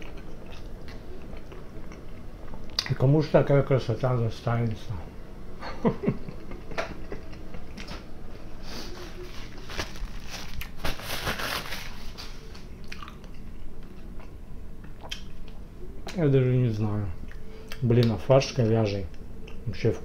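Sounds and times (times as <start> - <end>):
person chewing with wet clicks: 0.0 - 3.0, 12.7 - 16.2, 17.2 - 18.2, 19.1 - 19.7.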